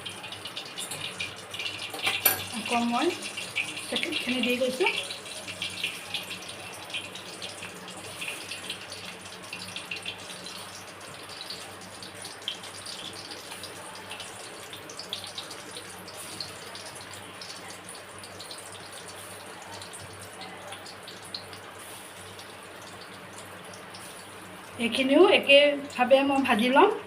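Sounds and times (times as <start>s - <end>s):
food deep-frying in hot oil: 0.0s - 27.0s.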